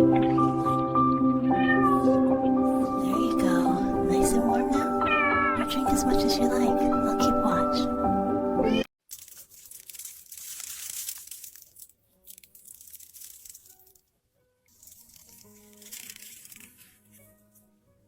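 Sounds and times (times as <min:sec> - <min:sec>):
faint gentle background music: 0:00.0 - 0:08.9
soft crackling rustling: 0:09.1 - 0:17.8.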